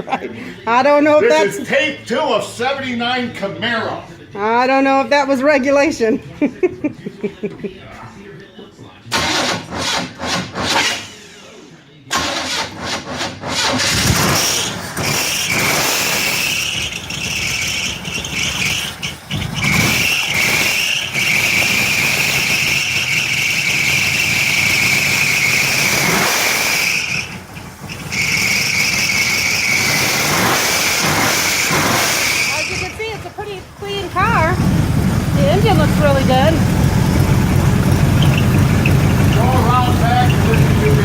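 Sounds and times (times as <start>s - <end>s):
car engine cranking and running: 9.1s - 11.1s, 12.1s - 41.0s
high-pitched belt squeal: 14.4s - 32.9s, 38.1s - 41.0s.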